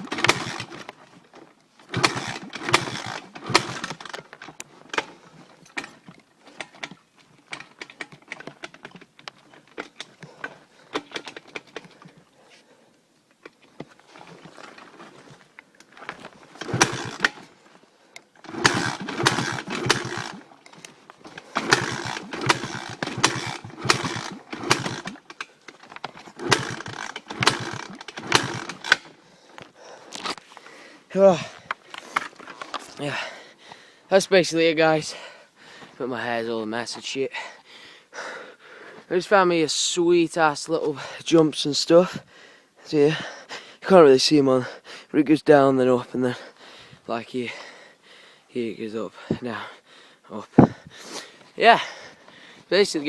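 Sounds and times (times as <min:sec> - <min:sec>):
motorbike engine revving: 0:00.0 - 0:00.9, 0:01.9 - 0:04.2, 0:16.6 - 0:17.5, 0:18.4 - 0:20.6, 0:21.3 - 0:25.3, 0:26.1 - 0:29.2.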